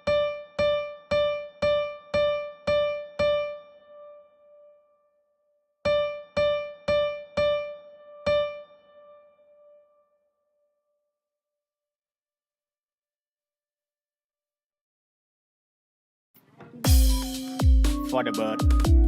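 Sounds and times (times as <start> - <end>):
high keyboard note struck: 16.6 - 19.0.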